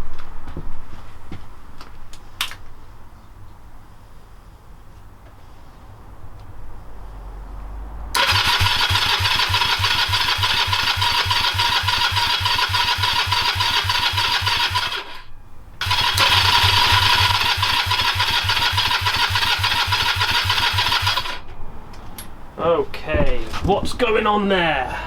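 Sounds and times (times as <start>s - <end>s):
electric starter cranking engine: 8.2s - 21.5s.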